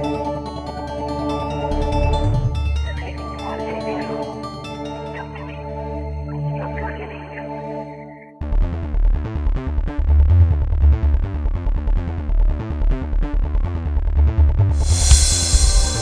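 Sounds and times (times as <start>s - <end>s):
rushing noise swell: 14.8s - 16.0s.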